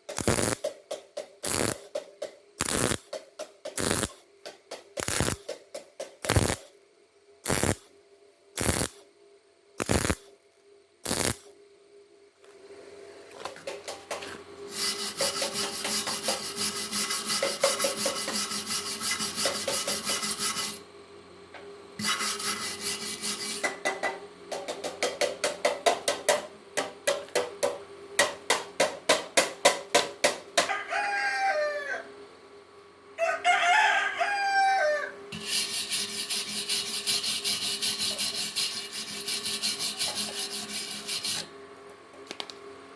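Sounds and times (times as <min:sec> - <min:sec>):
welder arc crackling: 0:00.1 - 0:00.6, 0:01.4 - 0:01.8, 0:02.6 - 0:03.0, 0:03.8 - 0:04.2, 0:05.0 - 0:05.5, 0:06.2 - 0:06.6, 0:07.4 - 0:07.8, 0:08.6 - 0:09.0, 0:09.8 - 0:10.2, 0:11.0 - 0:11.5
rooster crowing: 0:30.6 - 0:32.2, 0:33.2 - 0:35.3.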